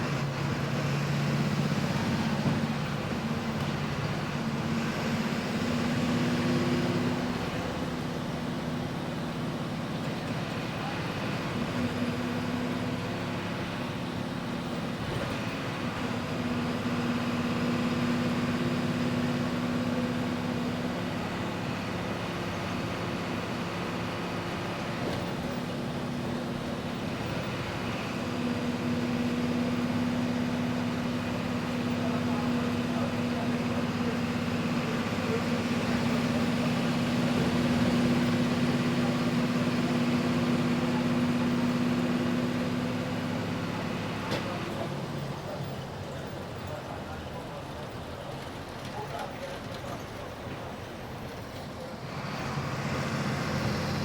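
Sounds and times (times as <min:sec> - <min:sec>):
bus diesel engine revving: 0:00.0 - 0:54.0.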